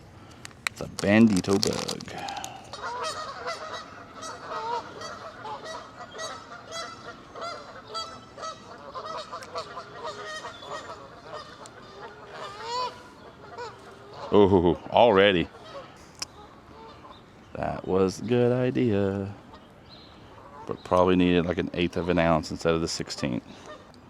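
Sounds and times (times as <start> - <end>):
waterfowl calling: 1.4 - 18.6, 19.2 - 22.4, 23.4 - 24.0.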